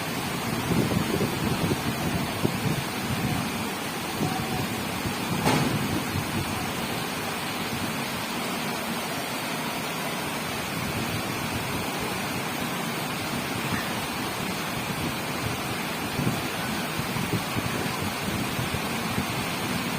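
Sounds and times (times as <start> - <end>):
heavy rain downpour: 0.0 - 19.9
short sharp knock: 5.4 - 5.8.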